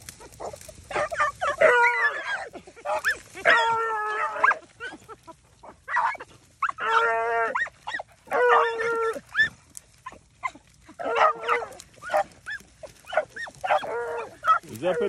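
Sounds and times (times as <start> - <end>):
dogs barking: 0.0 - 15.0
dogs baying: 0.0 - 15.0.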